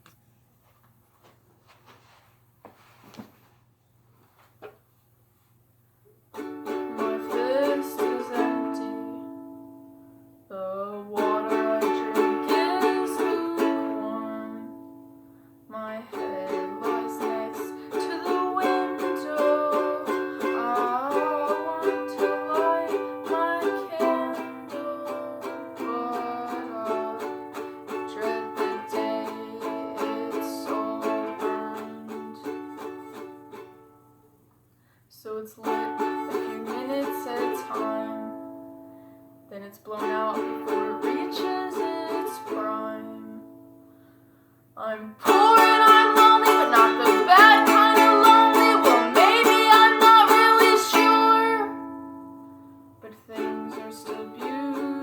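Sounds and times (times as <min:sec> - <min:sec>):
plucked string instrument: 0:06.3 - 0:10.1, 0:11.1 - 0:15.2, 0:16.1 - 0:34.2, 0:35.6 - 0:38.9, 0:39.9 - 0:43.8, 0:45.2 - 0:55.0.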